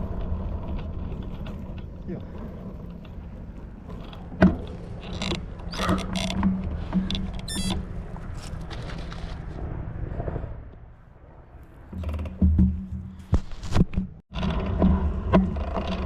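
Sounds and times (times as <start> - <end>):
short high squeak: 7.4 - 7.9.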